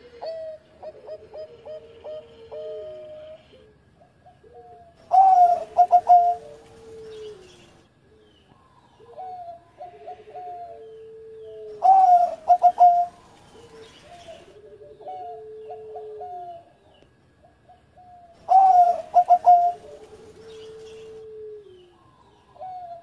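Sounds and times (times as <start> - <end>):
dove cooing song phrases: 0.0 - 23.0
soft dove cooing: 0.0 - 23.0.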